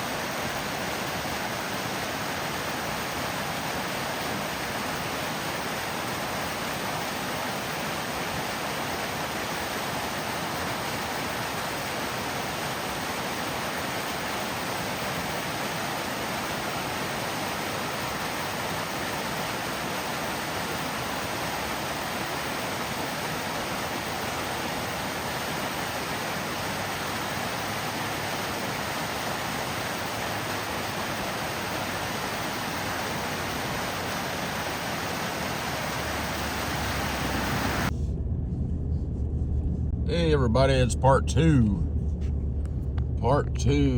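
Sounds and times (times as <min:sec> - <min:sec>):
small waterfall rushing: 0:00.0 - 0:37.9.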